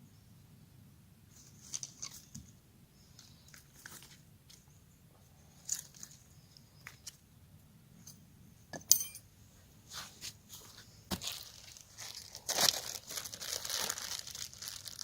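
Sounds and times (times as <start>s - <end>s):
sharp metallic clink: 8.8s - 9.3s.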